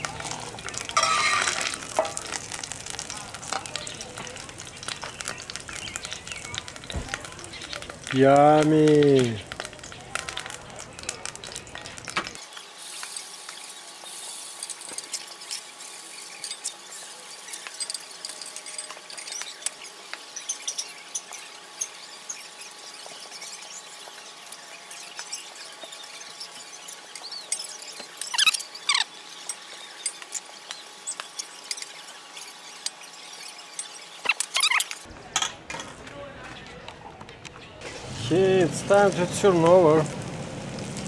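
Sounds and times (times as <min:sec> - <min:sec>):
batter sizzling in hot oil: 0:00.0 - 0:35.1, 0:37.8 - 0:41.0
short high falling squeaks: 0:34.2 - 0:34.9.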